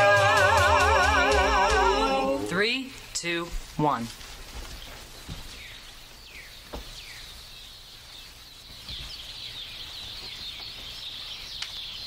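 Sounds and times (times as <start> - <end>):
dense bird twittering chorus: 4.5 - 12.0.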